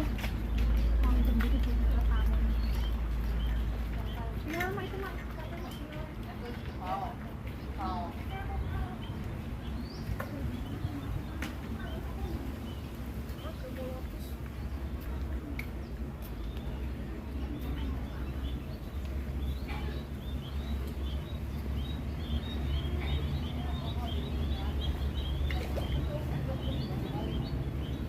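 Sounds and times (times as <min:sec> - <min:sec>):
chicks cheeping: 0:14.5 - 0:28.0.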